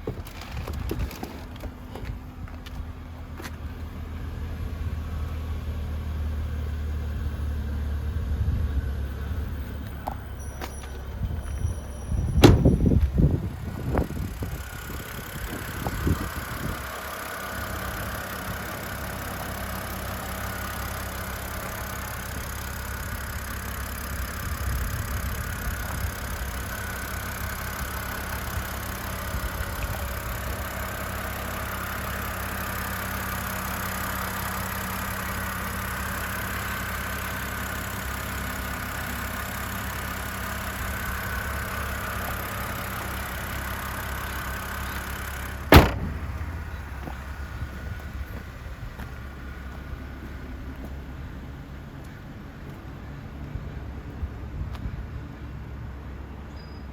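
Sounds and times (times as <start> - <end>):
car engine idling: 0.0 - 53.8
sharp knock: 45.7 - 46.5.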